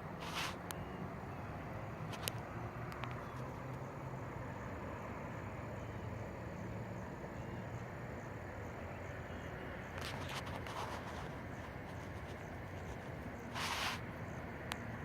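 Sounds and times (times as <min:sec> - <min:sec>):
low outdoor rumble: 0:00.0 - 0:15.0
faint clicks: 0:02.1 - 0:03.8.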